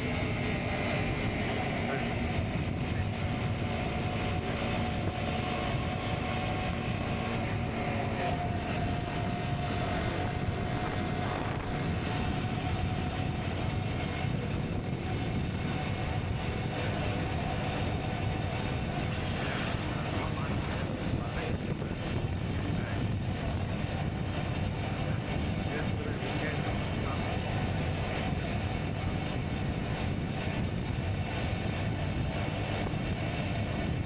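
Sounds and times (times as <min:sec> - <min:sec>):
motorcycle engine cruising: 0:00.0 - 0:20.2.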